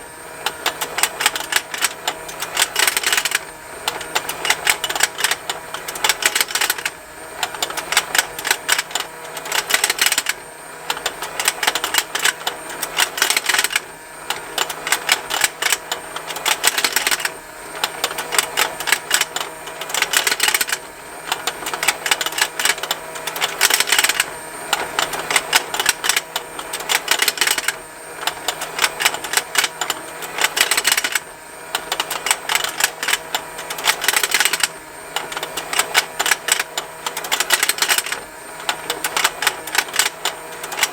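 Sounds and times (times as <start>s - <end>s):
rapid plastic ticking of toy motor: 0.0s - 40.9s.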